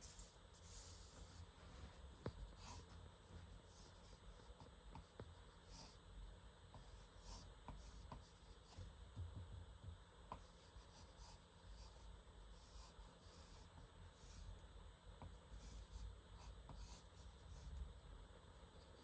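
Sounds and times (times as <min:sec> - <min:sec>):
pen scratching on paper: 0:00.0 - 0:01.5, 0:10.3 - 0:14.4, 0:15.2 - 0:17.7.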